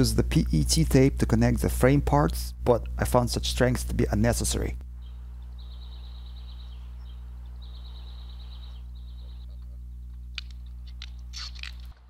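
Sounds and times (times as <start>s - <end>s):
steady low hum: 0.0s - 12.0s
small bird trilling: 5.0s - 10.0s.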